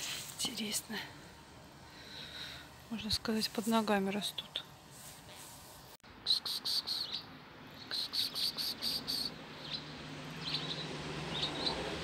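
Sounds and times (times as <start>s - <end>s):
small birds chirping: 6.1s - 12.0s.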